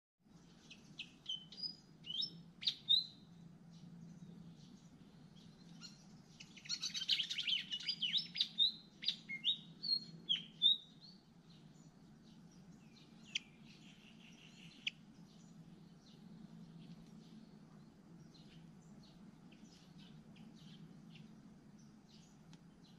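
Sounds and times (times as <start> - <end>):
bird chirps and whistles: 1.0 - 3.2, 6.6 - 10.9.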